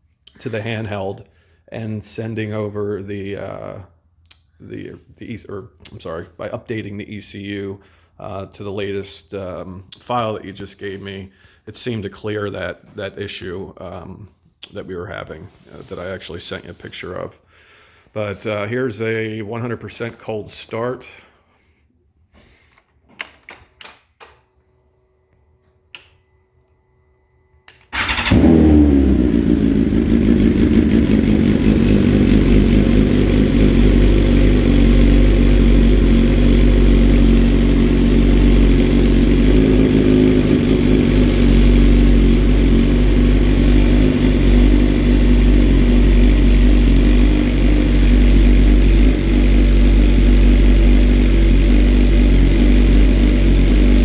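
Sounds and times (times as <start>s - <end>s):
motorcycle engine starting and idling: 27.7s - 54.0s.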